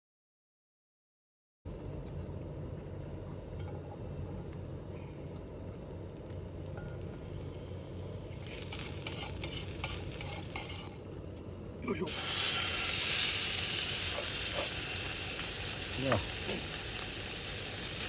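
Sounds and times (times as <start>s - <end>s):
food sizzling in a frying pan: 7.0s - 11.2s, 12.0s - 18.0s.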